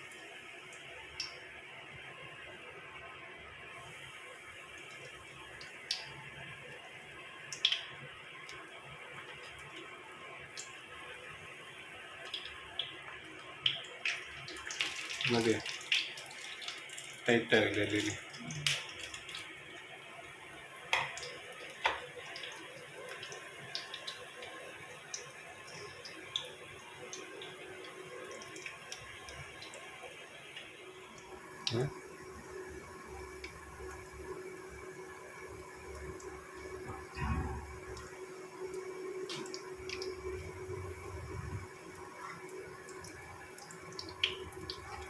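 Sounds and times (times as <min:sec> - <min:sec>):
food sizzling in a frying pan: 0:03.6 - 0:45.0
steady low hum: 0:35.8 - 0:42.2.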